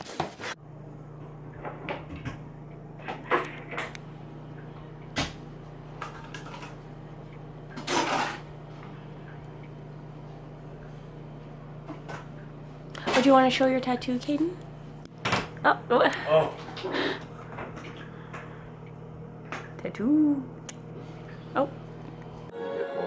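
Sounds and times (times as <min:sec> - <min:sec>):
steady low hum: 0:00.5 - 0:22.5.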